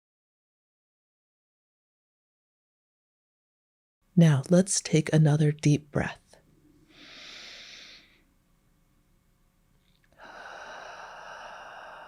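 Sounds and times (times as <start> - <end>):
person breathing deeply: 6.8 - 8.3, 10.1 - 12.0.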